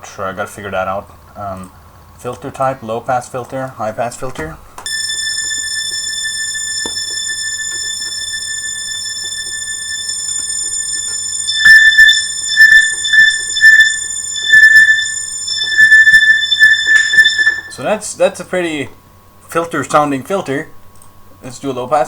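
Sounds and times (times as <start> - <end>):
thin high synth tone: 4.9 - 17.8.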